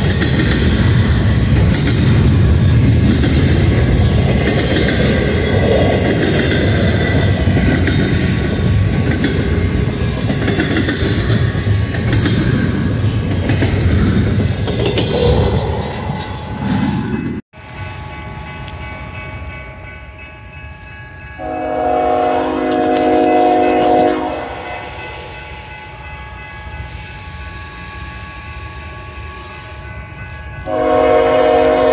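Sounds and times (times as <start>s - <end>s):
freight train rolling past: 0.0s - 31.9s
locomotive air horn chord: 21.4s - 25.0s, 30.6s - 31.9s.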